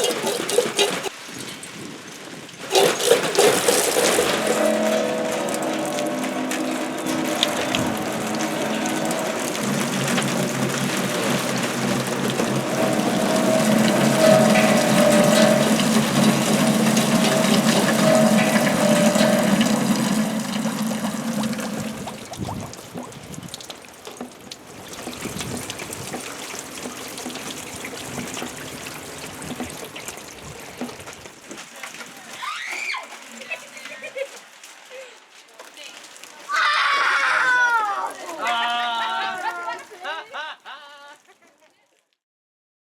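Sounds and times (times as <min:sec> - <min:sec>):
scattered water drips and taps: 0:00.0 - 0:40.2
water splashing over hung objects: 0:00.0 - 0:40.8
steady pitched tones: 0:02.7 - 0:22.8.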